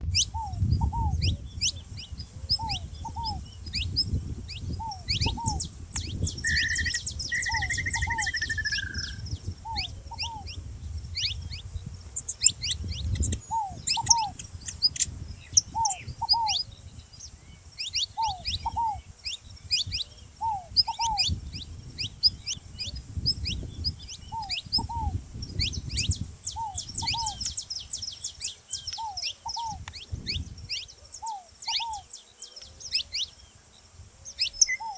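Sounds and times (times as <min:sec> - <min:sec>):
finches chirping: 0:00.1 - 0:34.9
buzzy trilled bird call: 0:04.8 - 0:10.5
dove two-note coo: 0:06.5 - 0:10.5.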